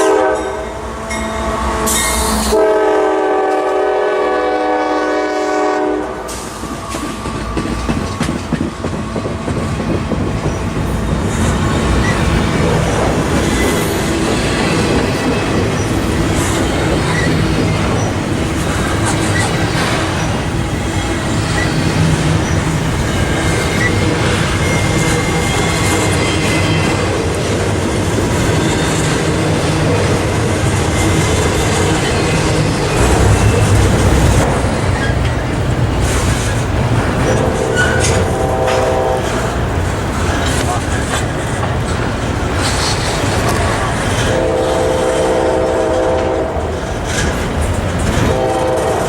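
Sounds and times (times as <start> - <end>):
freight train rumbling past: 0.0 - 49.0
wheel squeals: 10.4 - 20.4.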